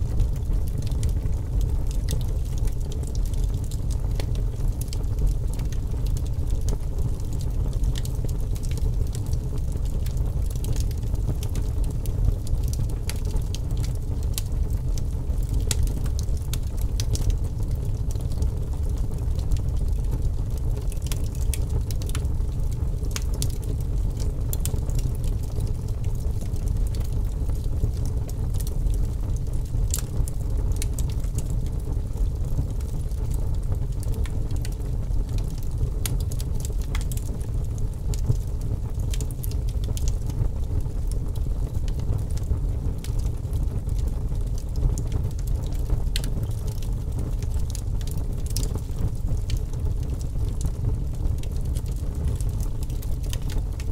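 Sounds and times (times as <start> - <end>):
wood fire crackling: 0.0 - 53.9.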